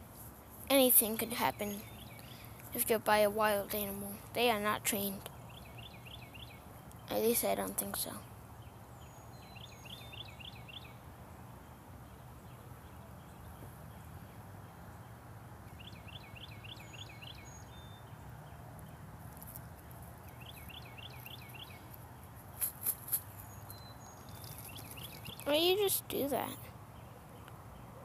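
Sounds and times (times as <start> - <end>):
songbird singing: 0.4 - 28.0
low background hum: 17.5 - 28.0.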